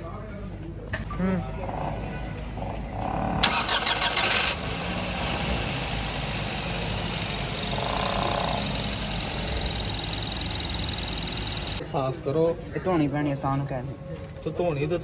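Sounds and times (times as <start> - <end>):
machine humming: 4.5 - 11.8.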